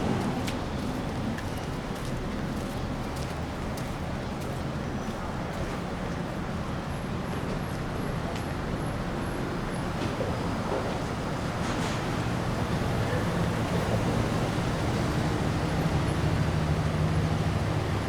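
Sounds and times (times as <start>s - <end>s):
vehicles passing: 0.0s - 1.4s.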